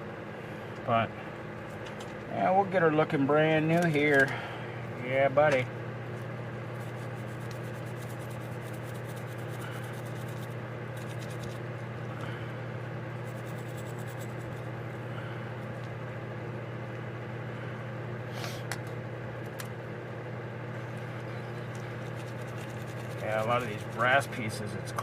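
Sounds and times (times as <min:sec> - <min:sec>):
steady low hum: 0:00.0 - 0:25.0
wire brush scrubbing metal: 0:06.8 - 0:11.6, 0:13.2 - 0:14.7, 0:21.8 - 0:24.8.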